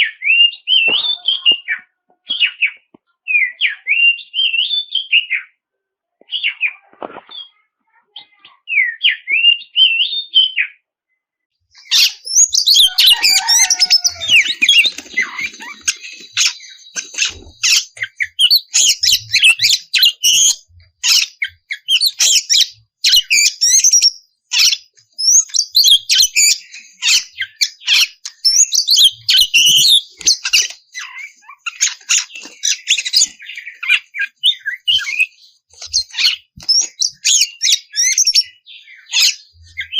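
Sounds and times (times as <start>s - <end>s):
bird singing whistles and chatters: 11.7s - 39.9s.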